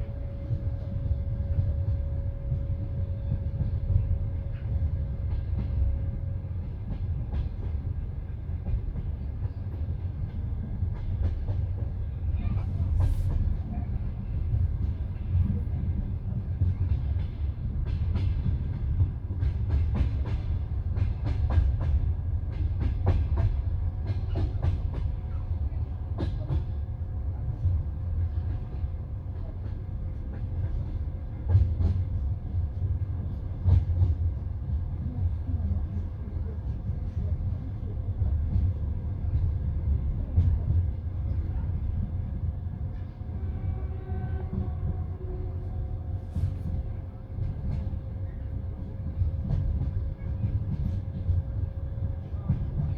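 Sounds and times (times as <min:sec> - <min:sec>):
train rumbling: 0:00.0 - 0:52.9.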